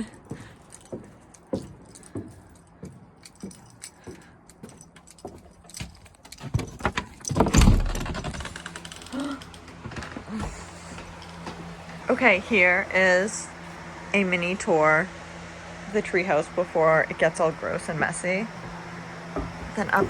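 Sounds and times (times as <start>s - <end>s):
light knocks and rattling clicks: 0.1s - 11.7s, 18.6s - 20.0s.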